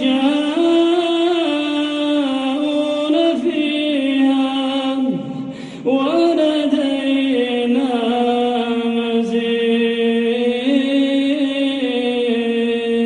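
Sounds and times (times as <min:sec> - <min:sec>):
man reciting in melodic chant: 0:00.0 - 0:13.0.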